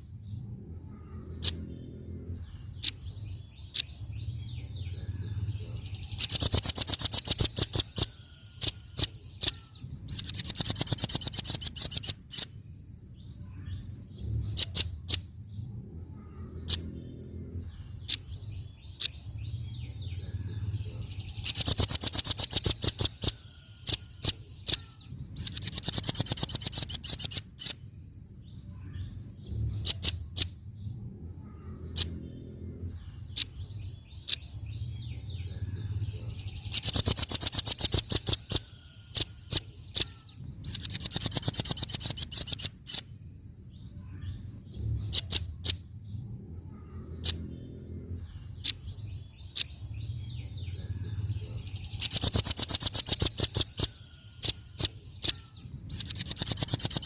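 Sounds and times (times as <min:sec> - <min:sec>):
bird rattling trills: 0:06.1 - 0:12.6, 0:21.4 - 0:27.9, 0:36.6 - 0:43.2, 0:51.9 - 0:57.0.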